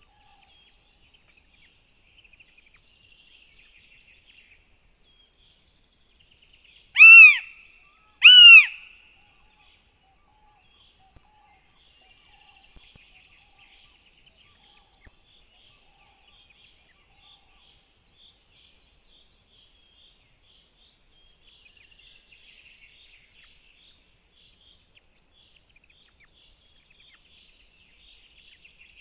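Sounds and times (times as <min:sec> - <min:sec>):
hawk calling: 0:07.0 - 0:07.5, 0:08.2 - 0:08.9.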